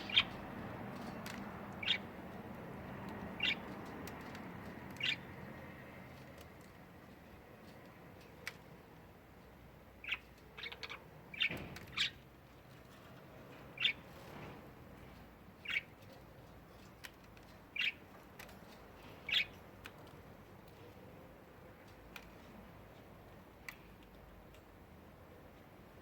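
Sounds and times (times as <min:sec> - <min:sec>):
budgerigar chirping: 0:00.0 - 0:00.4, 0:03.4 - 0:03.6.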